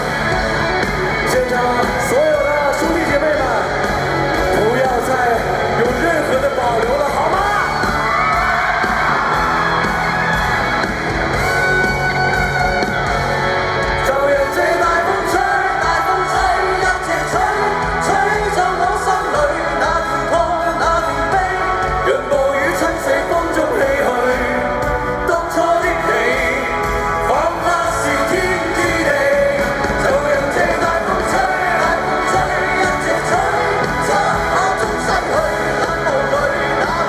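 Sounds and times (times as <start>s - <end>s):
band playing pop-rock: 0.0s - 37.0s
crowd yelling and whooping: 0.0s - 37.0s
person singing: 0.0s - 37.0s.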